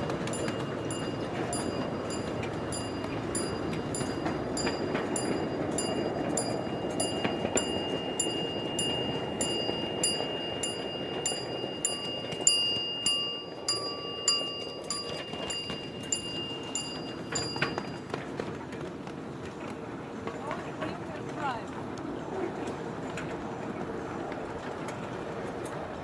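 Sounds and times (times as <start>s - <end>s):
thin high whine: 0.0s - 18.3s
miniature train rumbling: 0.0s - 26.0s
wheels clicking over rail joints: 0.0s - 26.0s.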